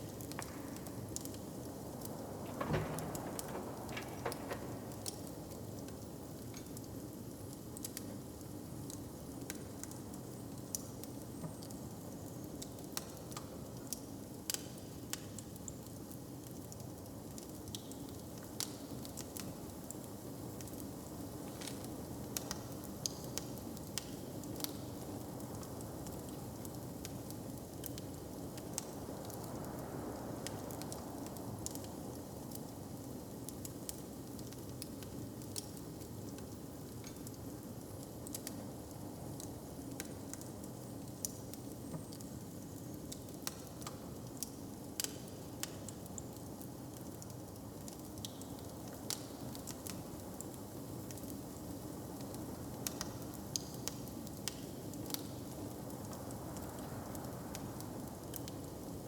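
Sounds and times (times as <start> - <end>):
steady hiss: 0.0 - 6.1
wood fire crackling: 0.0 - 59.0
fire pops and snaps: 0.1 - 6.8.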